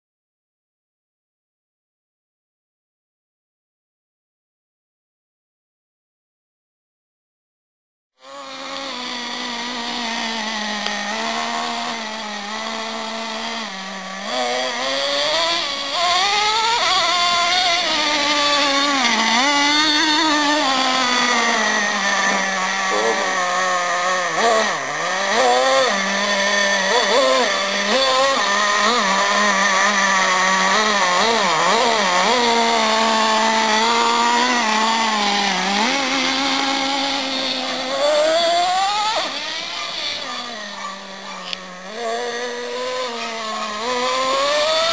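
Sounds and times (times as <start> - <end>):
small two-stroke engine buzzing: 8.2 - 44.9.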